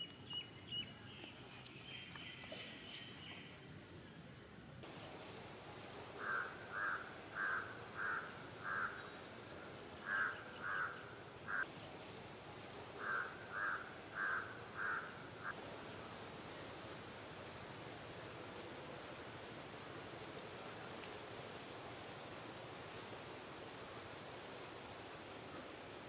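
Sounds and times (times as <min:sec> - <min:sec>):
bird calling: 0:06.2 - 0:09.3, 0:10.0 - 0:11.7, 0:13.0 - 0:15.6.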